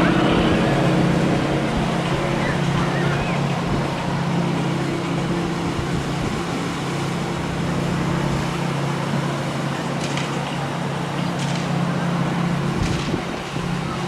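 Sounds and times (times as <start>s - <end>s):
biplane engines in flight: 0.0s - 14.0s.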